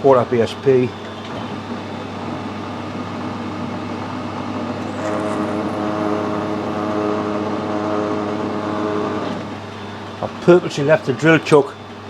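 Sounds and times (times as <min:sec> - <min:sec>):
steady pitched hum: 0:00.7 - 0:12.0
machine tool motor running: 0:01.0 - 0:12.0
drill bit cutting brass: 0:04.8 - 0:09.7.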